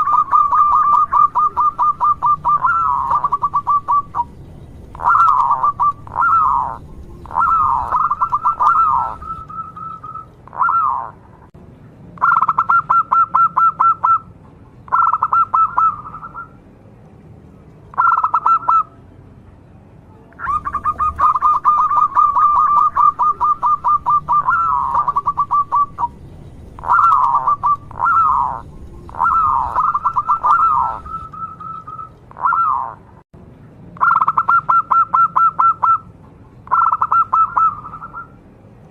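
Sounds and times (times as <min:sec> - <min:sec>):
dove cooing: 0:00.0 - 0:11.2, 0:12.2 - 0:14.3, 0:14.9 - 0:16.5, 0:18.0 - 0:18.9, 0:20.4 - 0:33.0, 0:34.0 - 0:36.0, 0:36.7 - 0:38.3
faint low hum: 0:00.0 - 0:12.3, 0:18.6 - 0:34.0.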